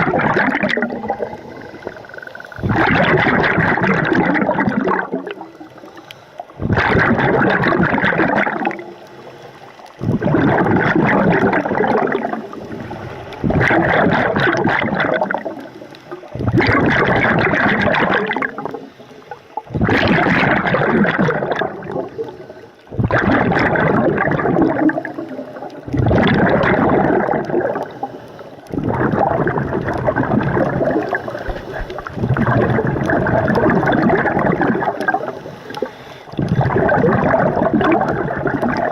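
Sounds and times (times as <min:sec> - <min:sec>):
bubbling underwater exhalations: 0:00.0 - 0:05.8, 0:06.5 - 0:09.0, 0:09.9 - 0:18.9, 0:19.6 - 0:38.9
regulator inhalations: 0:31.0 - 0:32.2, 0:35.3 - 0:36.4.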